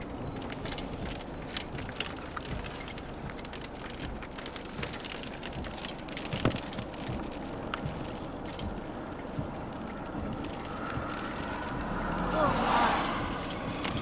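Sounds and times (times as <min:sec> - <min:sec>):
raindrops ticking on vehicle: 0:00.0 - 0:14.0
steady rushing noise: 0:06.7 - 0:14.0.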